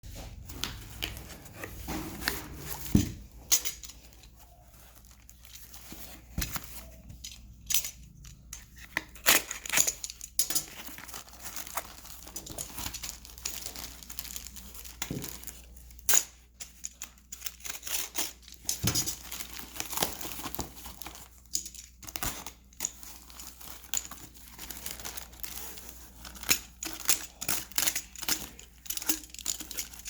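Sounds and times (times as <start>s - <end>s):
packaging crinkling and tearing: 8.7s - 16.2s, 17.2s - 30.0s.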